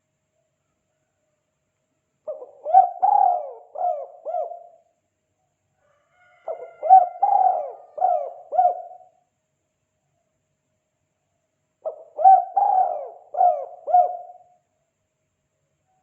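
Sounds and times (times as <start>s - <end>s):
dove cooing: 2.3s - 4.8s, 6.4s - 9.2s, 11.8s - 14.6s.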